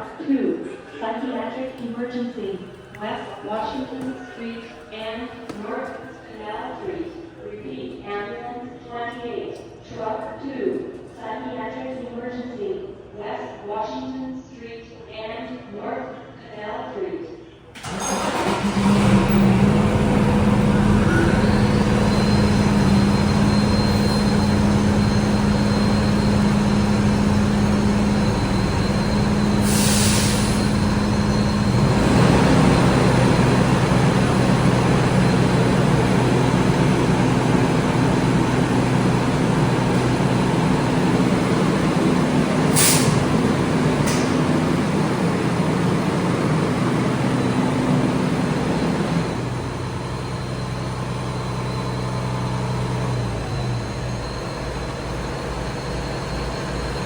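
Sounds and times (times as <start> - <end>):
air brakes hissing: 17.8 - 50.4
diesel engine running: 17.8 - 57.0.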